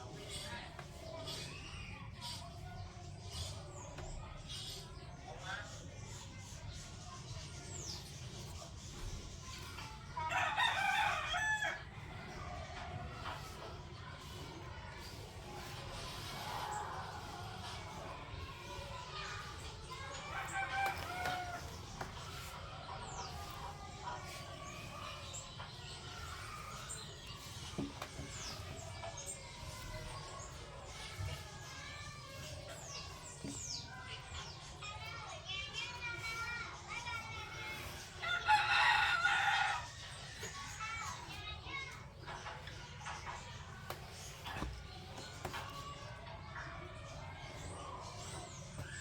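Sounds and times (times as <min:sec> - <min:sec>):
rooster crowing: 0:10.3 - 0:11.8, 0:38.2 - 0:39.9.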